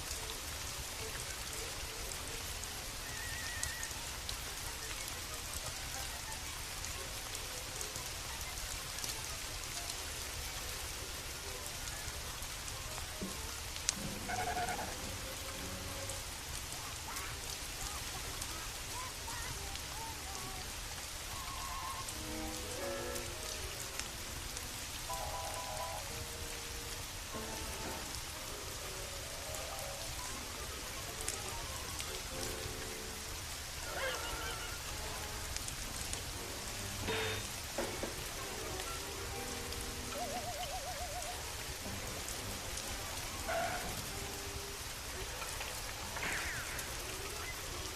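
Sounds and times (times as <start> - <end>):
steady rain: 0.0 - 47.9.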